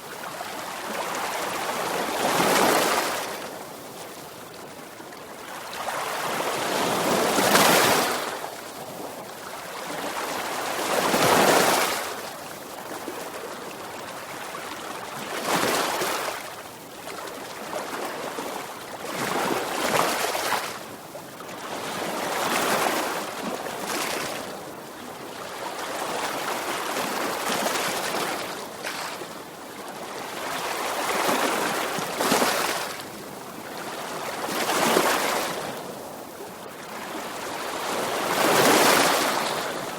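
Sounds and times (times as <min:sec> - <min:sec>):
sea waves breaking on shore: 0:25.5 - 0:39.9.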